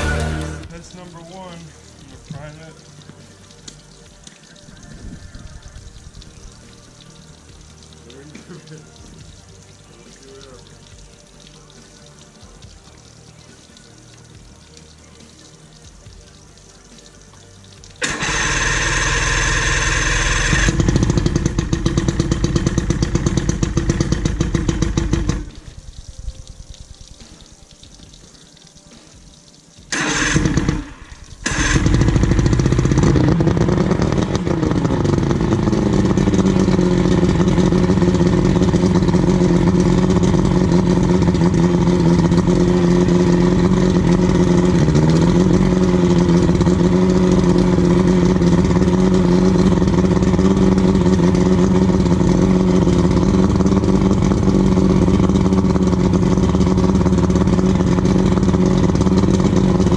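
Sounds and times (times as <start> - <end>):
outboard motor running: 0.0 - 1.0, 18.0 - 25.6, 29.9 - 59.9.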